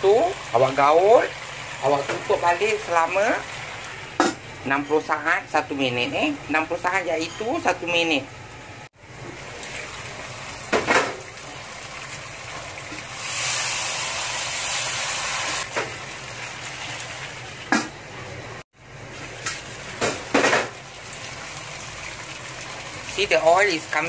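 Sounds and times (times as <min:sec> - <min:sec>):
chicken sizzling in a wok: 0:00.0 - 0:04.1, 0:09.0 - 0:17.7, 0:18.8 - 0:24.0.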